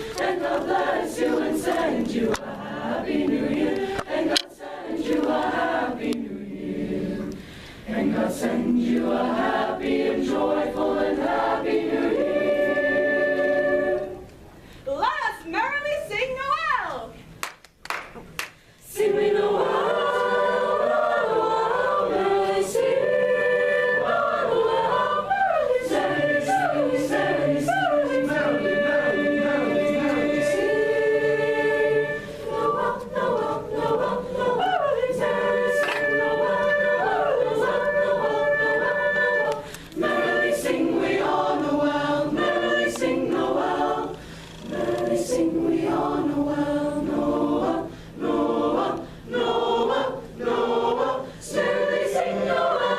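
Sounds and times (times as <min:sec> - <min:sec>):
singers breathing: 0:00.0 - 0:00.2, 0:07.3 - 0:07.9, 0:14.5 - 0:14.9, 0:39.6 - 0:40.0, 0:44.1 - 0:44.6, 0:47.8 - 0:48.2, 0:49.0 - 0:49.3, 0:51.2 - 0:51.4
choir singing a cappella: 0:00.0 - 0:14.4, 0:18.8 - 0:52.9.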